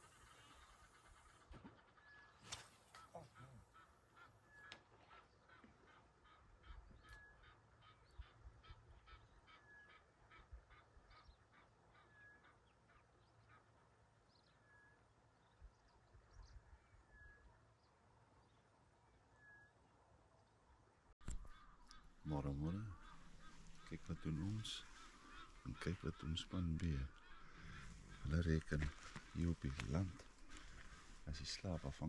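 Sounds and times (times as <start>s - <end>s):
rapid bird calls: 21.2s - 32.0s.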